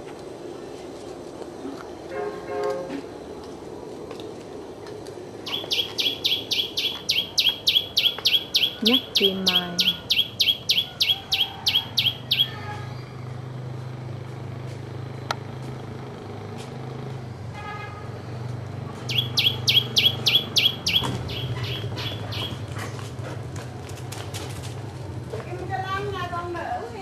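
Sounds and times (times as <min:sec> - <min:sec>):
steady low hum: 0:00.0 - 0:27.0
small bird chirping: 0:05.4 - 0:13.3, 0:19.0 - 0:22.7.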